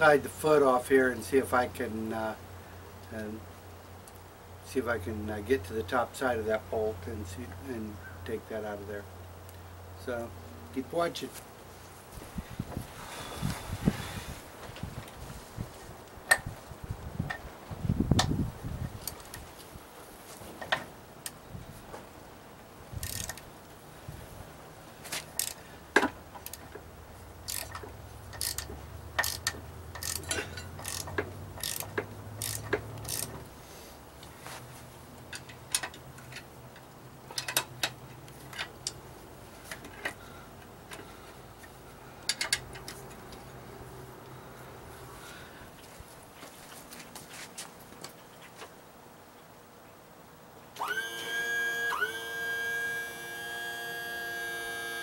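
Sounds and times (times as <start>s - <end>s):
ratchet wrench clicking: 23.0s - 23.4s, 25.4s - 25.6s, 26.4s - 26.7s, 27.4s - 33.4s
metallic clicks and knocks: 27.4s - 33.4s, 35.3s - 39.0s, 42.2s - 43.2s.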